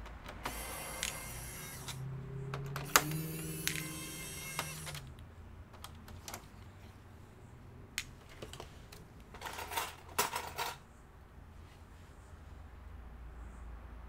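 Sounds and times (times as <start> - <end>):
laptop parts and screws clicking: 0.0 - 6.8, 8.0 - 10.8
plastic and metal rattling scrape: 8.2 - 10.8.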